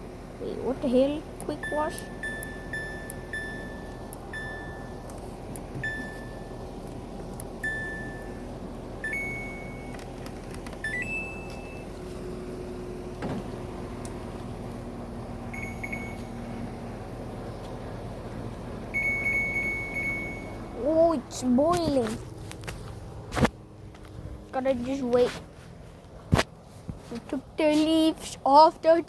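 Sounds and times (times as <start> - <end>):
low steady hum: 0.0 - 29.0
control panel beeps: 1.4 - 5.1, 5.8 - 6.6, 7.6 - 8.4, 9.0 - 9.9, 10.8 - 11.9, 15.5 - 16.4, 19.0 - 20.7.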